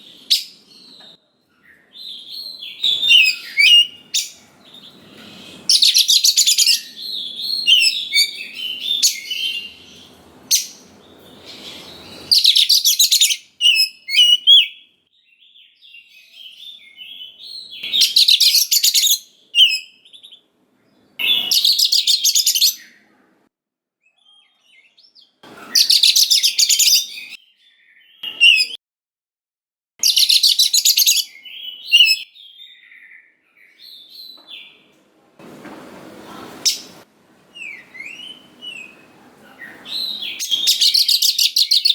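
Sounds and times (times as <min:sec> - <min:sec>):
bird harsh trills: 0:01.7 - 0:14.8
bird whistled warbled phrases: 0:12.3 - 0:14.8.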